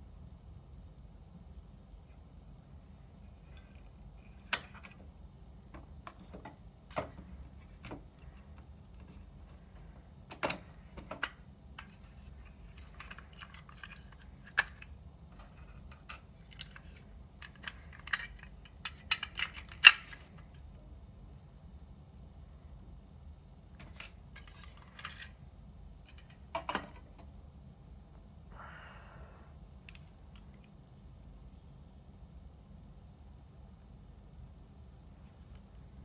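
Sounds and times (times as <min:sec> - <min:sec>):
faint low hum: 0:00.0 - 0:36.0
clicks and rattles of tools: 0:10.3 - 0:20.5, 0:26.0 - 0:27.3.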